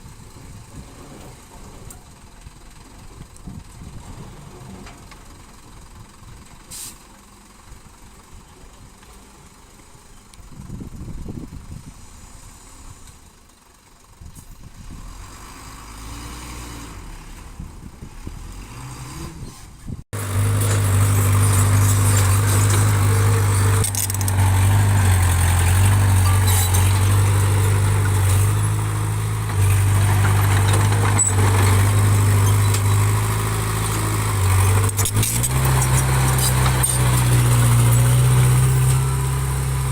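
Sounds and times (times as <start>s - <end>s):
diesel engine of earthmoving machine: 0.0s - 39.9s.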